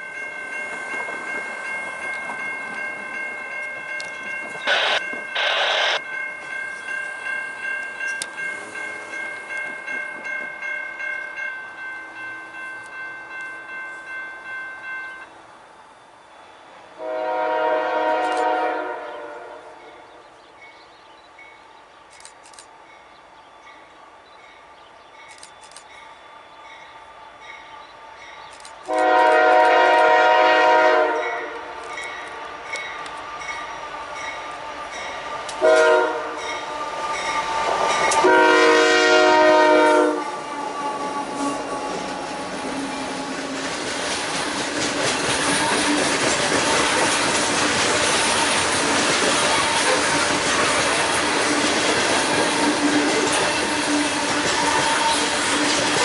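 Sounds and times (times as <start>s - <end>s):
train wheels clattering on rails: 0.0s - 5.4s, 7.8s - 11.4s, 40.2s - 56.0s
approaching train hum: 0.0s - 56.0s
train horn blasts: 17.0s - 20.0s, 28.9s - 31.9s, 35.6s - 36.6s, 38.1s - 42.0s.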